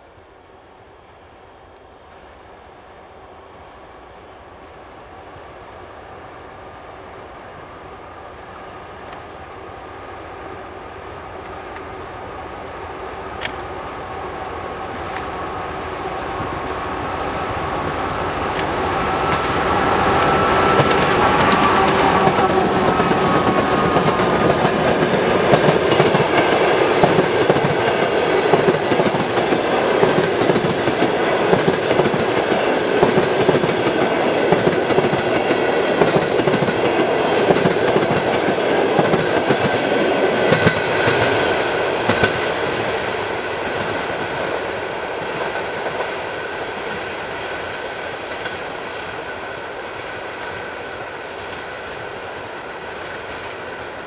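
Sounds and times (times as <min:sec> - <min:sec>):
train wheels clacking over rail joints: 0:18.5 - 0:41.3.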